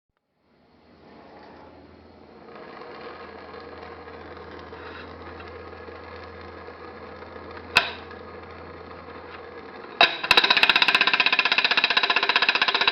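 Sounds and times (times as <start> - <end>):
small engine buzzing rattle: 1.0 - 12.9.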